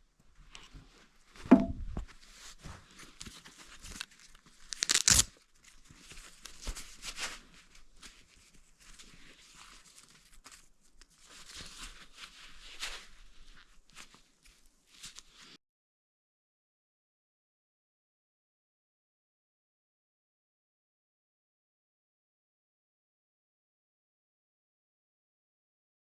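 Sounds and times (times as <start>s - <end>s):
rustling and scraping: 0.5s - 5.0s, 5.6s - 15.6s
heavy thump: 1.5s - 2.0s
material tearing and crumpling: 2.2s - 15.6s.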